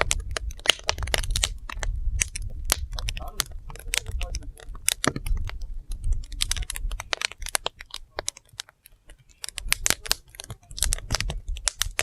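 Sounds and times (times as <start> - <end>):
low fire rumble: 0.0 - 12.0
wood fire crackling: 0.0 - 12.0.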